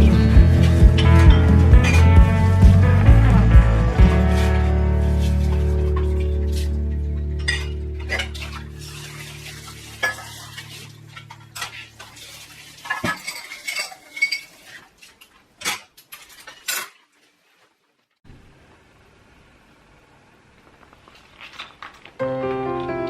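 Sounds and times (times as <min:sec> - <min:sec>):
background music: 0:00.0 - 0:09.0, 0:22.2 - 0:23.0
dishes and cutlery clinking: 0:07.4 - 0:14.8.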